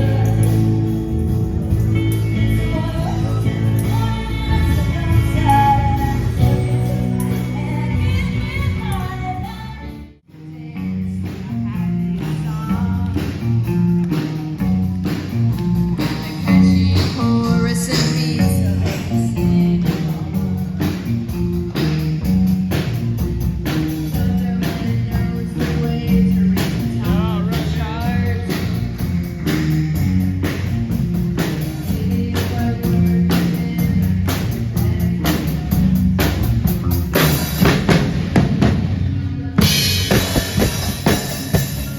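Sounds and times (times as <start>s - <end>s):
person singing: 0.0s - 1.0s, 2.0s - 13.6s, 16.0s - 21.2s, 23.9s - 29.1s, 31.4s - 36.4s
steady drum beat: 0.0s - 9.5s, 11.2s - 41.9s
electric guitar: 0.0s - 41.9s.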